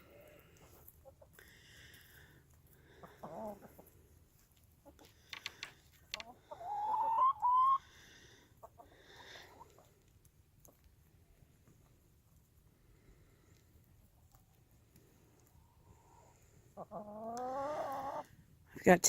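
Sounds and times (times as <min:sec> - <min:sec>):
hens calling: 0:04.8 - 0:09.9, 0:15.9 - 0:18.3.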